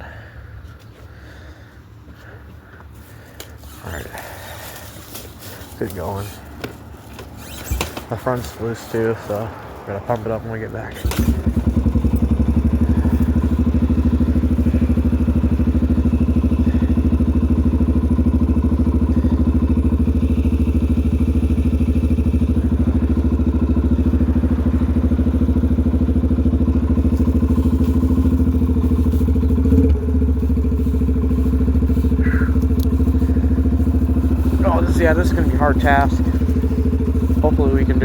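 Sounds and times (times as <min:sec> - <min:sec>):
dirt bike engine running: 0:02.7 - 0:38.0.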